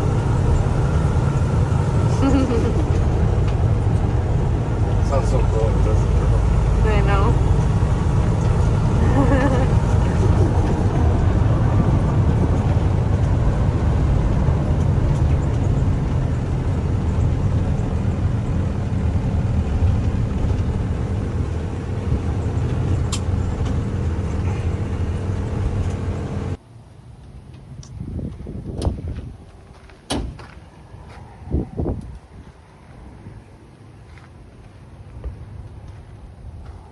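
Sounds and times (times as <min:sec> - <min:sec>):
truck engine running: 0:00.0 - 0:26.6.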